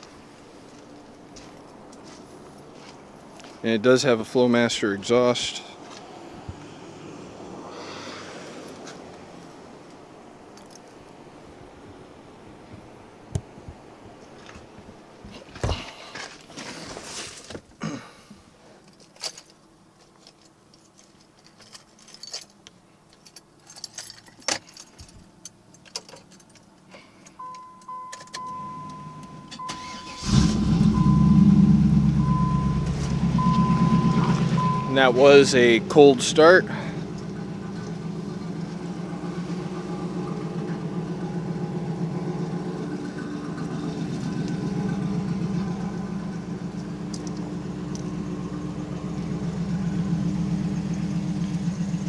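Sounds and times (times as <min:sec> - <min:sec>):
keys jangling: 0:18.9 - 0:26.9
car engine starting and running: 0:27.4 - 0:52.0
steady high tone: 0:27.4 - 0:52.0.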